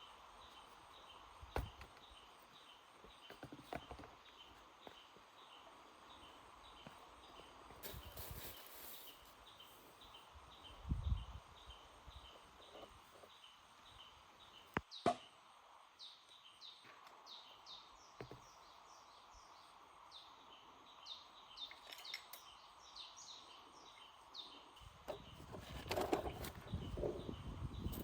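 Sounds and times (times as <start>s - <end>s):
birds chirping: 0.0s - 28.0s
rustling and clattering: 7.7s - 9.3s, 25.1s - 27.3s.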